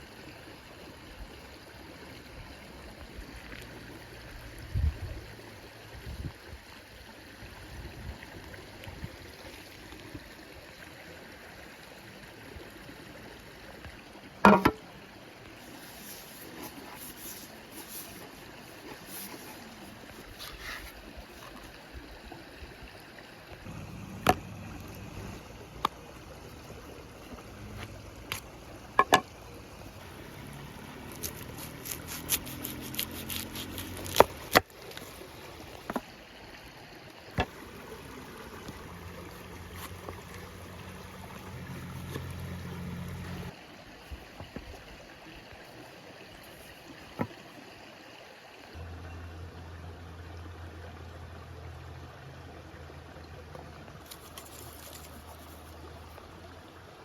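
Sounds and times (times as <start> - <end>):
sharp knocks and clicks: 14.5 - 14.8, 29.0 - 29.3.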